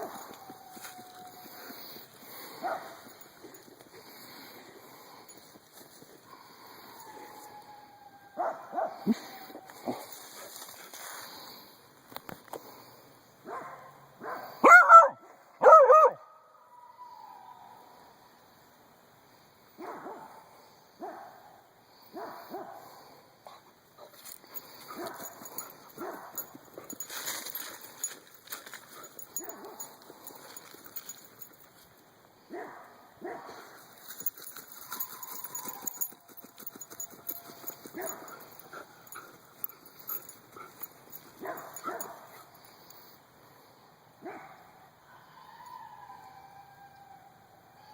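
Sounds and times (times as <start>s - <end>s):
dogs barking: 13.5s - 16.2s, 37.3s - 39.2s, 41.4s - 42.4s.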